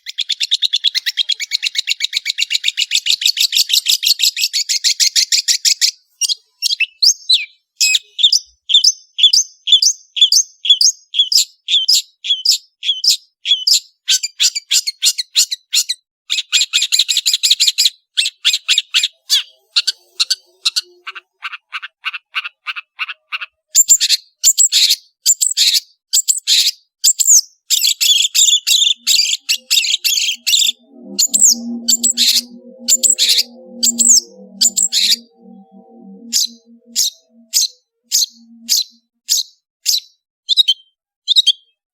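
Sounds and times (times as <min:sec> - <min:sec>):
bird singing sharp high notes: 0:19.0 - 0:22.2, 0:27.8 - 0:39.4
low musical tones: 0:29.0 - 0:38.8.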